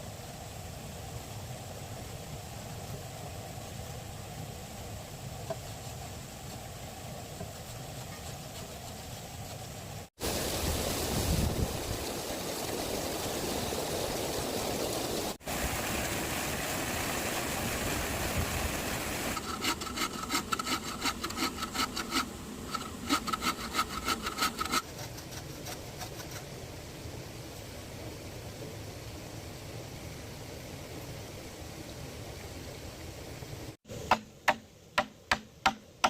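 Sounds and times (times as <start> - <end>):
hand saw cutting bamboo: 19.4 - 26.4.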